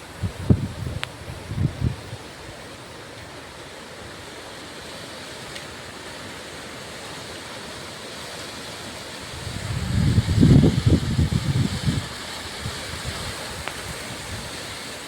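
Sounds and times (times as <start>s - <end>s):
wind buffeting microphone: 0.0s - 2.3s, 9.3s - 14.7s
wind rushing: 9.3s - 14.6s.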